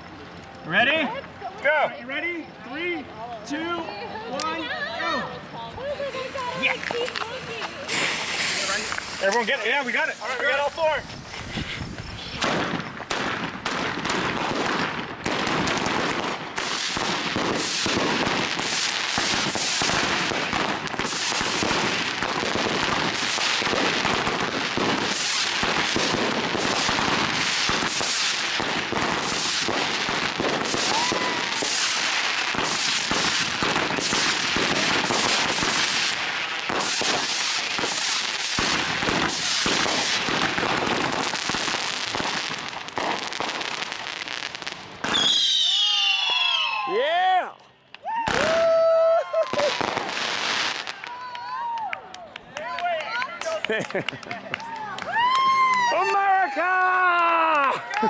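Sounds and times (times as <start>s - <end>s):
fireworks barrage: 5.8s - 46.9s, 49.4s - 51.2s.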